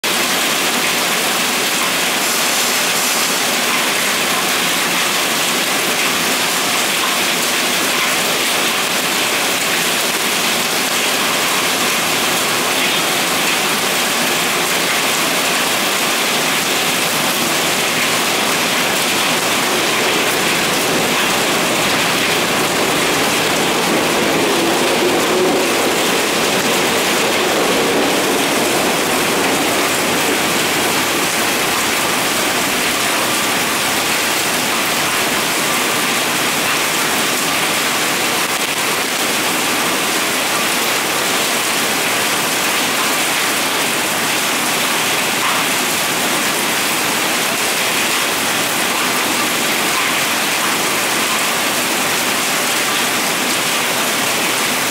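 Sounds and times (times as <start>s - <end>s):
steady rain on roof: 0.0s - 54.9s
electric train running: 17.2s - 33.0s.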